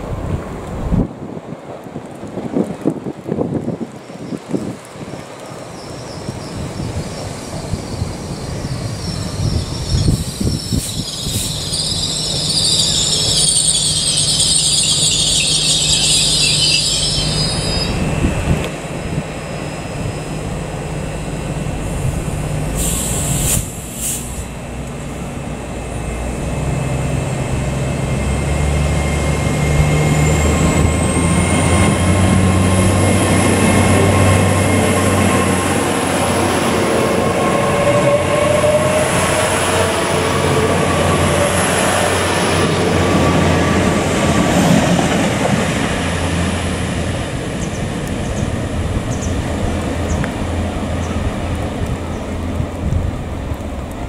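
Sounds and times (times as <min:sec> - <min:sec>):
train engine pulling away: 0:04.0 - 0:54.0
train brakes squealing: 0:05.6 - 0:18.5, 0:22.7 - 0:24.5, 0:28.1 - 0:48.5
high-pitched whine: 0:05.8 - 0:24.7
brief hiss: 0:22.7 - 0:24.5.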